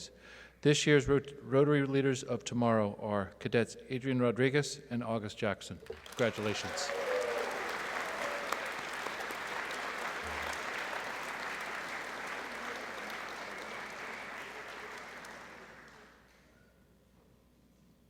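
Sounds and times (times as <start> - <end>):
audience applauding: 5.8 - 16.4.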